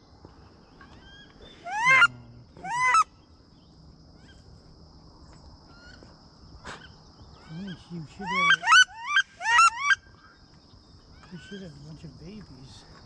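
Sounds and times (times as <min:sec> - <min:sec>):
goose honking: 0:01.7 - 0:03.0.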